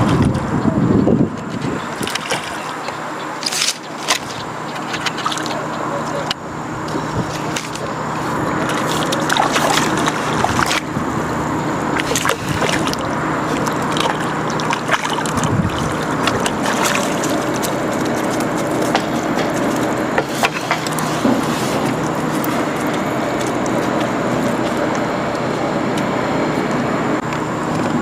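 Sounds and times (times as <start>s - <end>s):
low steady hum: 0.0s - 28.0s
rushing river water: 1.4s - 27.2s
small splashes: 1.5s - 5.7s, 7.2s - 11.2s, 11.8s - 24.9s.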